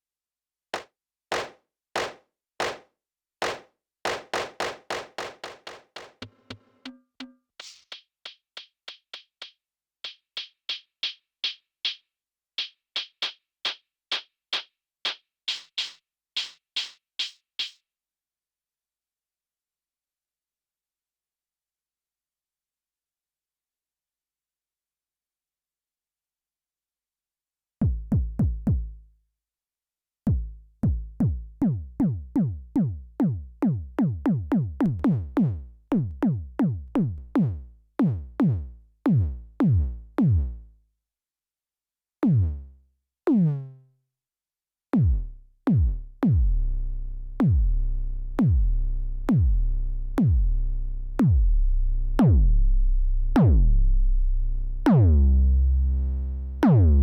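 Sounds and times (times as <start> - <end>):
synthesized kick drums: 27.8 - 29.0, 30.3 - 40.6, 42.2 - 42.7, 45.0 - 46.8, 47.4 - 50.6, 51.2 - 52.7, 53.4 - 53.9.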